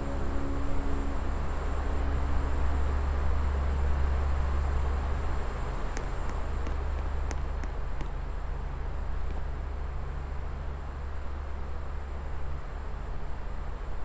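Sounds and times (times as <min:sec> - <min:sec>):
ceiling fan motor hum: 0:00.0 - 0:11.8.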